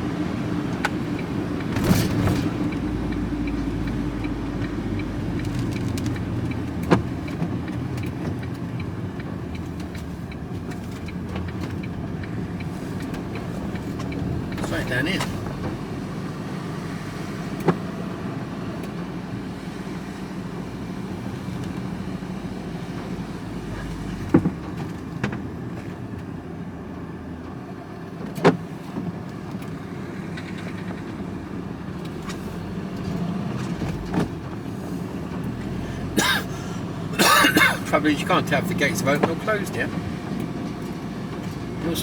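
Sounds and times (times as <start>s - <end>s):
van engine and road noise: 0.0s - 42.0s.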